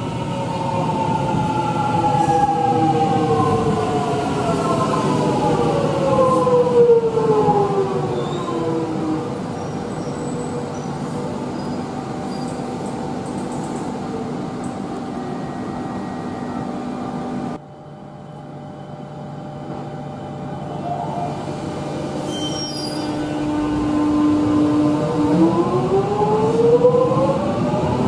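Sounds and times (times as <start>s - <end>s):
standing train humming: 0.0s - 28.0s
faint high squeaks: 22.2s - 23.3s.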